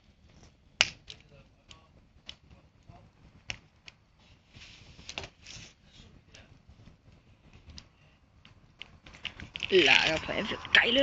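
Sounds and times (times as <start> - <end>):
campfire crackling: 0.0 - 11.0
soft hiss: 4.1 - 8.3.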